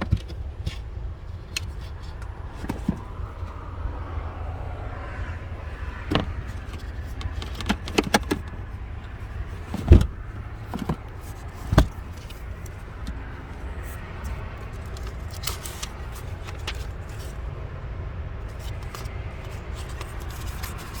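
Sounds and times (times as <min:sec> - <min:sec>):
car handling clicks and knocks: 0:00.0 - 0:03.9, 0:05.2 - 0:17.4
steady low rumble: 0:00.0 - 0:15.2
heavy thumps: 0:07.6 - 0:12.3.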